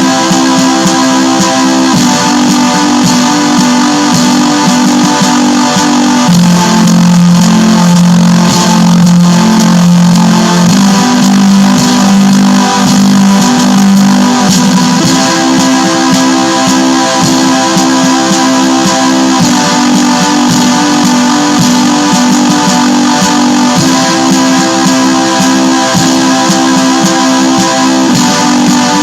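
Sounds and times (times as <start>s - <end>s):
black metal music: 0.0s - 29.0s
distorted electric guitar riff: 0.0s - 29.0s.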